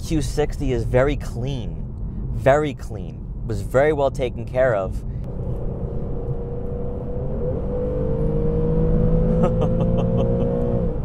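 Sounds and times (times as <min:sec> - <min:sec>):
low road rumble: 0:00.0 - 0:11.0
car engine accelerating: 0:05.2 - 0:11.0.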